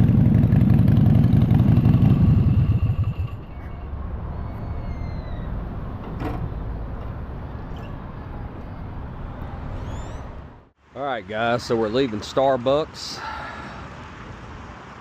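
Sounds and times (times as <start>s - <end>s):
motorcycle engine idling: 0.0s - 3.5s.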